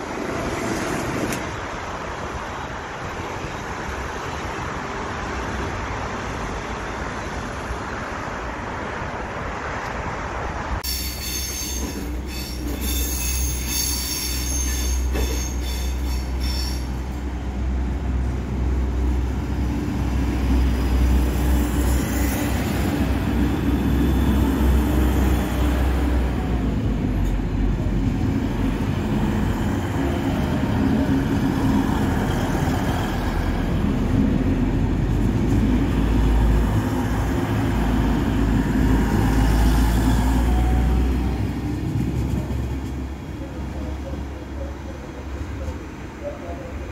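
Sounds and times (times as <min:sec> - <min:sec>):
train rumbling on tracks: 0:00.0 - 0:46.9
train wheel squeal: 0:10.8 - 0:17.0.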